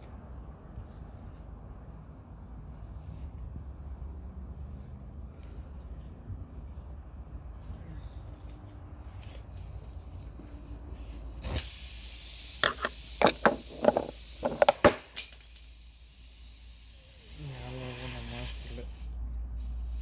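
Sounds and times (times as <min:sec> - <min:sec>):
air hissing out of a tyre: 0:10.8 - 0:20.0.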